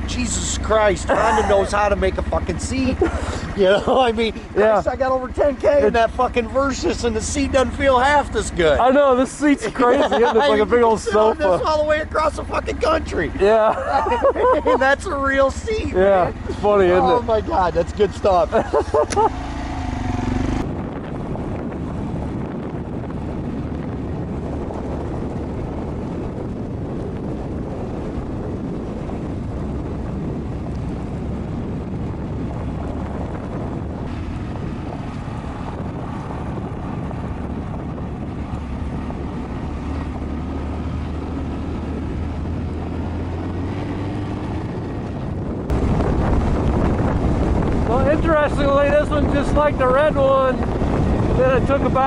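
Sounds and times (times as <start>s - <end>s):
motorcycle engine running: 0.0s - 9.9s, 10.5s - 52.0s
wind rush on microphone: 0.0s - 52.0s.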